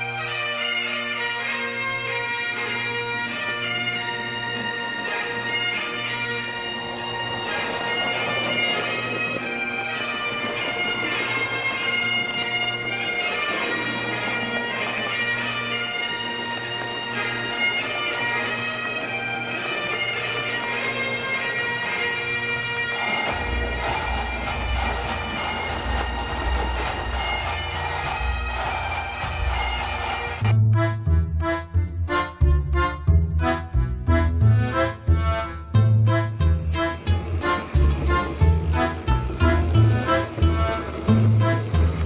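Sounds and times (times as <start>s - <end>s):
bagpipe tune over drone: 0.0s - 42.0s
low pulsing beat: 23.2s - 42.0s.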